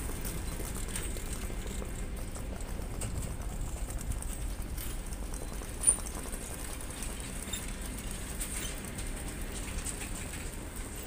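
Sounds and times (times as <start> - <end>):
train coaches rumbling past: 0.0 - 11.0
wheels clicking on rails: 0.0 - 11.0.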